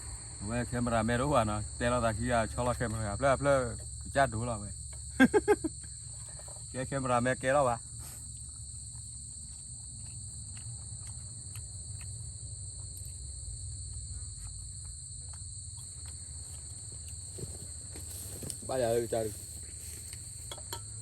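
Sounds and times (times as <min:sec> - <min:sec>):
low rumble: 0:00.0 - 0:04.4
high-pitched insect chorus: 0:00.0 - 0:21.0.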